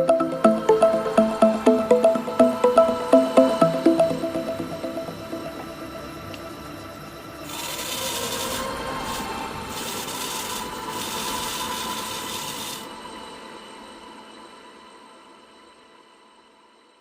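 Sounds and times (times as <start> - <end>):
faint steady tones: 0.0 - 9.7.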